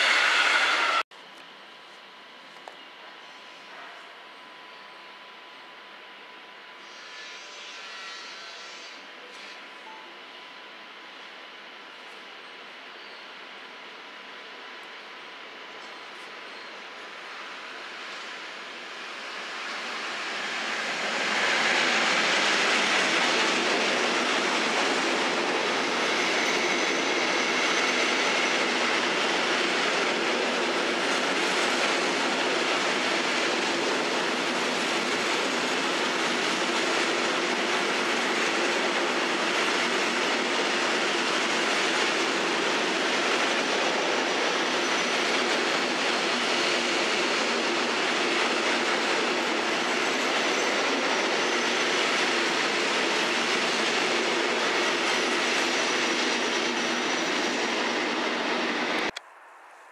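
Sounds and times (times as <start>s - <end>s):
train wheels rumbling on rails: 0.0s - 1.0s, 15.5s - 59.2s
faint high wheel squeal: 6.8s - 10.2s, 12.4s - 13.4s, 15.8s - 17.1s, 25.7s - 29.0s, 49.7s - 52.6s.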